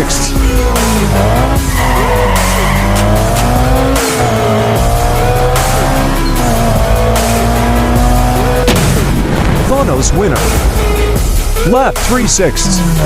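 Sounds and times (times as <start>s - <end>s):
race car engine revving: 0.0s - 11.3s
background music: 0.0s - 13.0s.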